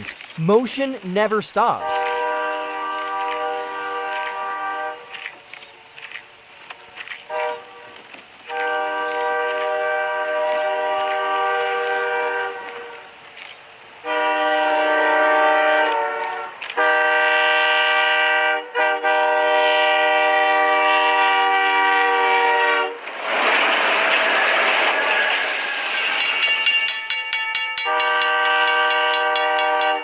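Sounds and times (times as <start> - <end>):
train passing rush: 0.0 - 30.0
locomotive air horn blasts: 1.8 - 5.2, 7.3 - 13.1, 14.0 - 23.0, 27.8 - 30.0.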